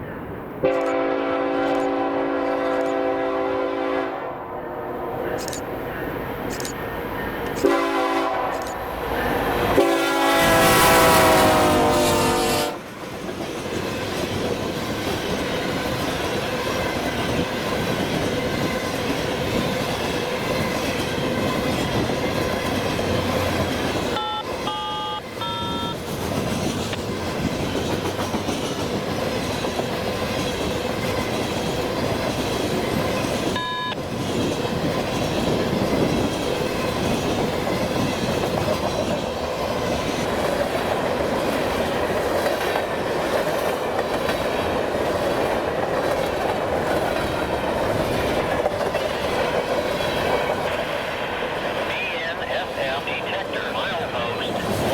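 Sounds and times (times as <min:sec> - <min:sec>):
train wheel and rail clatter: 0:00.0 - 0:04.0, 0:05.1 - 0:54.9
train horn blasts: 0:00.6 - 0:05.2, 0:07.6 - 0:08.7, 0:09.7 - 0:12.8, 0:24.2 - 0:26.0.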